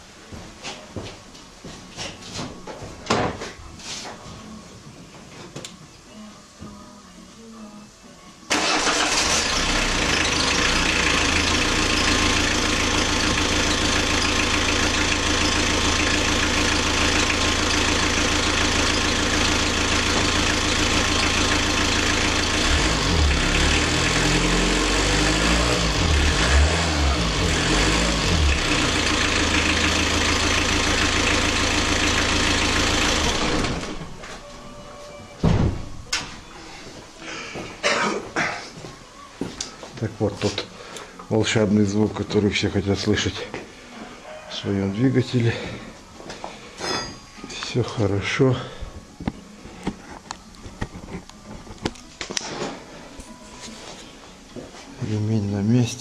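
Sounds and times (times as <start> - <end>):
diesel engine starting and running: 8.5 - 34.4.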